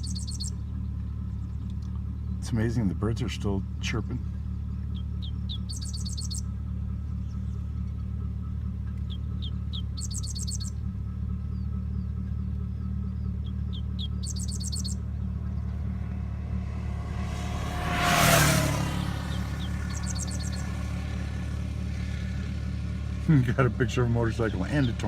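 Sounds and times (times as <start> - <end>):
low engine idle: 0.0 - 17.4, 19.0 - 25.0
birds chirping in trills: 0.0 - 23.2, 23.8 - 25.0
motorcycle passing by: 0.0 - 25.0.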